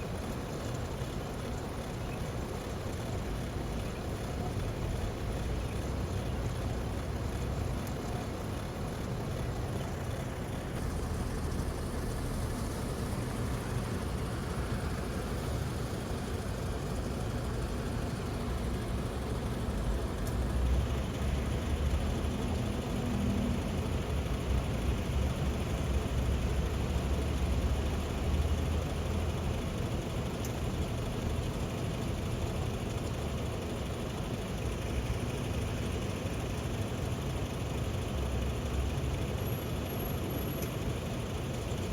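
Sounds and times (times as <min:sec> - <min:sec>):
truck engine running: 0:00.0 - 0:41.9.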